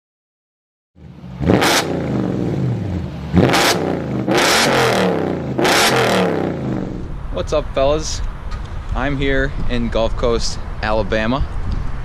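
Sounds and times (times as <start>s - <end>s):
car engine revving: 1.0s - 7.4s.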